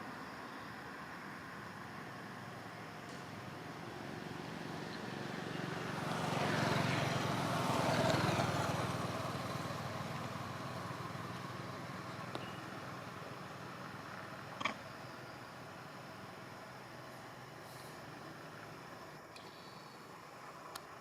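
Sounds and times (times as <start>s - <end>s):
motor vehicle passing by: 3.2s - 15.8s.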